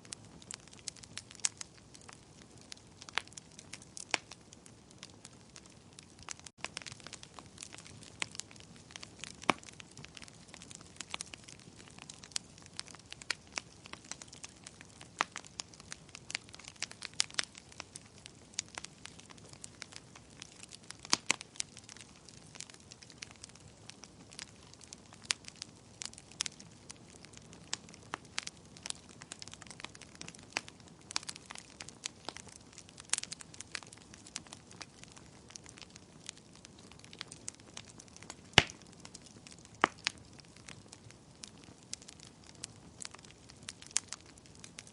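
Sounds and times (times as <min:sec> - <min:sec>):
wood fire crackling and popping: 0:00.0 - 0:44.9.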